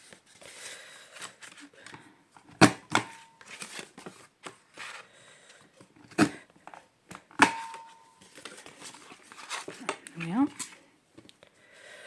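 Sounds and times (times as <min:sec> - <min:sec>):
paper rustling: 0:03.2 - 0:05.1, 0:08.2 - 0:10.8.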